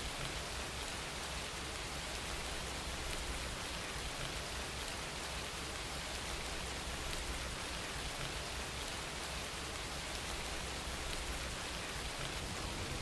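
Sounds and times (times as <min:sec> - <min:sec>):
steady rain falling: 0:00.0 - 0:13.0
low rumble: 0:12.3 - 0:13.0.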